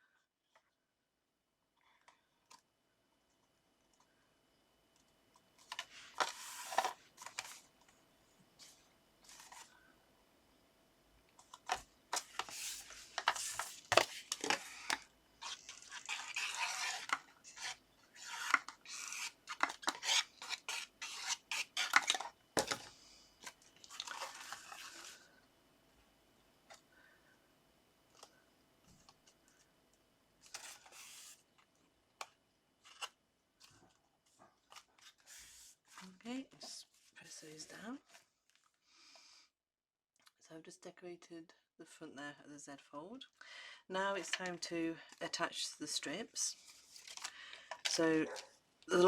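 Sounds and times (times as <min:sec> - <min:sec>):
paper scraping and rubbing: 0:05.7 - 0:07.7, 0:12.1 - 0:22.3, 0:23.9 - 0:25.3, 0:30.4 - 0:31.4, 0:35.0 - 0:36.2.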